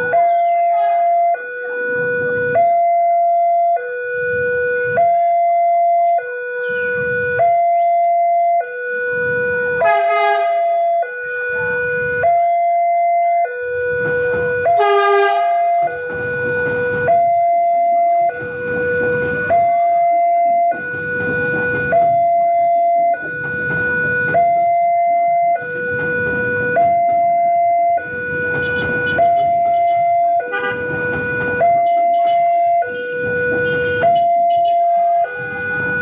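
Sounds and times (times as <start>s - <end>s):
level crossing alarm two-tone: 0.0s - 36.0s
rumbling vehicle noise: 0.0s - 36.0s
short horn blasts: 9.8s - 10.7s, 14.8s - 15.7s, 28.6s - 30.9s.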